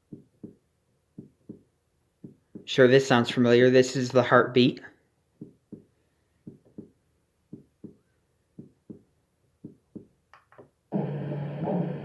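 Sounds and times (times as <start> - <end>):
soft heartbeat thumps: 0.0 - 2.8, 5.4 - 10.2.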